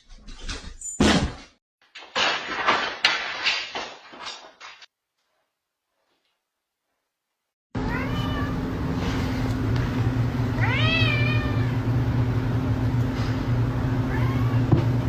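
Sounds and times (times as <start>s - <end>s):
cat meowing: 7.9s - 8.6s, 10.6s - 11.8s, 14.1s - 14.7s.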